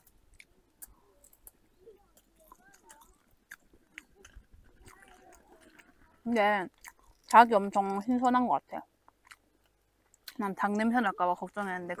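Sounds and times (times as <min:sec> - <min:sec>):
person chewing fried chicken: 0:00.0 - 0:07.4, 0:09.0 - 0:10.4.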